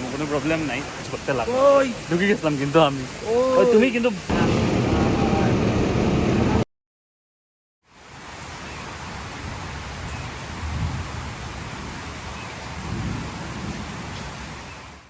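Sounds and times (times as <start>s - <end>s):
rain hiss: 0.0s - 6.6s, 7.9s - 15.0s
low rumble: 4.3s - 6.6s.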